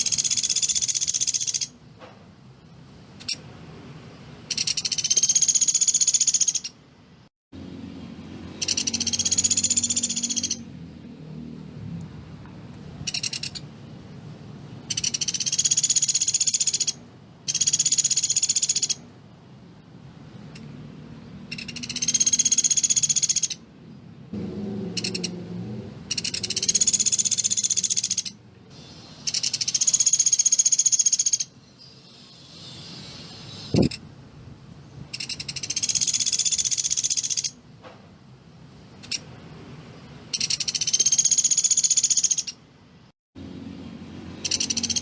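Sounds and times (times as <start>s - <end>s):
woodpecker rattling call: 0.0s - 1.8s, 3.2s - 3.4s, 4.5s - 6.8s, 8.5s - 10.7s, 13.0s - 13.7s, 14.8s - 19.0s, 21.5s - 23.6s, 25.0s - 25.3s, 26.1s - 28.4s, 29.2s - 31.5s, 35.1s - 37.6s, 39.0s - 39.3s, 40.3s - 42.6s, 44.4s - 45.0s.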